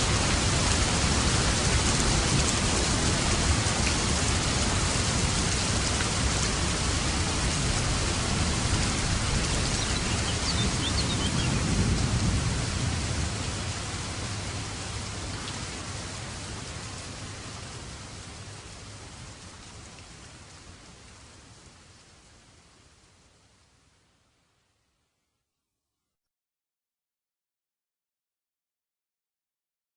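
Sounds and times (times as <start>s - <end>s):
light thunder rumble: 0.0s - 16.0s
steady rain: 0.0s - 25.1s.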